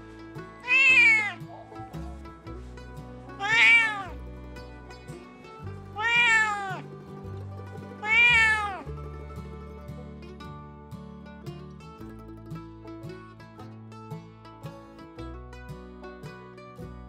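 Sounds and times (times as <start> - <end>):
background music: 0.0 - 17.0
cat meowing: 0.6 - 2.2, 3.3 - 4.2, 6.0 - 6.8, 8.0 - 8.9.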